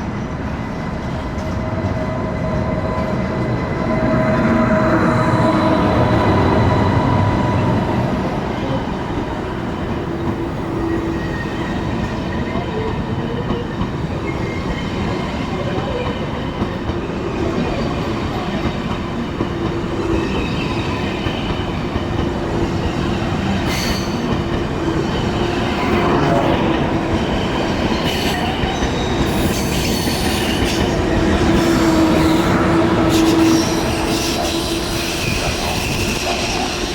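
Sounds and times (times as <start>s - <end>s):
train rumbling on rails: 0.0s - 36.9s
wheel whine and squeal: 20.0s - 36.9s.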